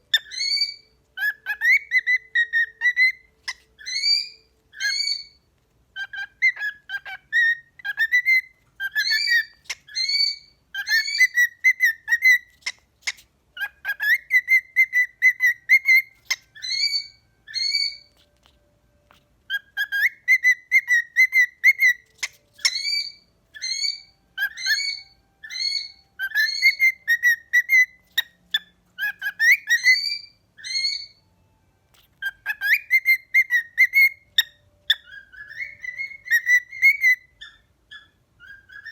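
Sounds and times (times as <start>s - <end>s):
cockatiels whistling a tune: 0.0s - 38.9s.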